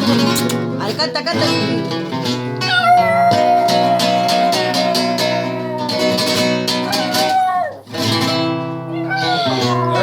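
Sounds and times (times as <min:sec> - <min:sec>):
strummed flamenco guitar: 0:00.0 - 0:10.0
dog howling: 0:02.6 - 0:10.0.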